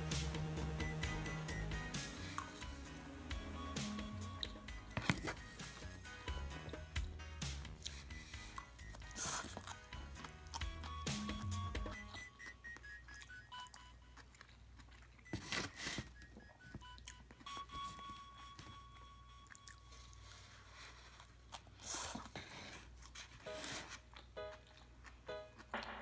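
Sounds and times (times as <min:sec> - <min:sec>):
plinking background music: 0:00.0 - 0:09.0
person crunching and chewing: 0:07.7 - 0:11.1, 0:12.1 - 0:17.6, 0:18.9 - 0:25.3.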